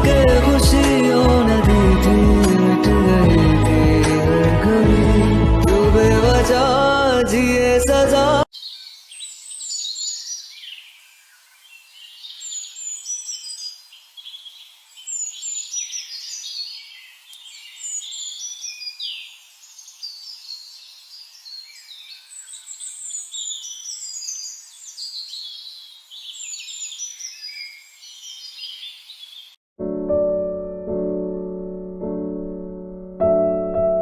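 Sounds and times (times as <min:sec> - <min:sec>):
flock of small birds chirping: 0:08.6 - 0:29.6.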